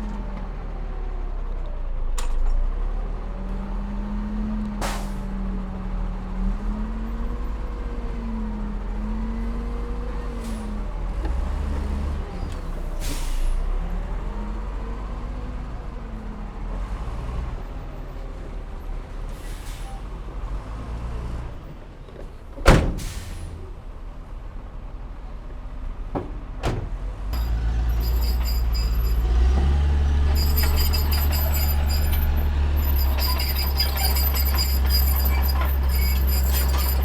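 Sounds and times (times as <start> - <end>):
heavy diesel engine running: 24.7 - 37.0.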